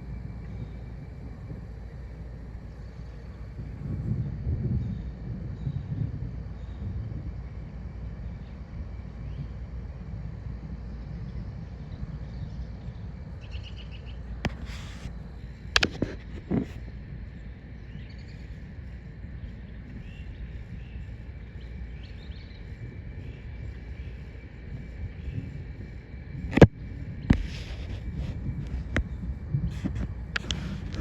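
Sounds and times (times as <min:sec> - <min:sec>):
wind rumbling on microphone: 0:00.0 - 0:31.0
birds chirping: 0:17.2 - 0:26.0.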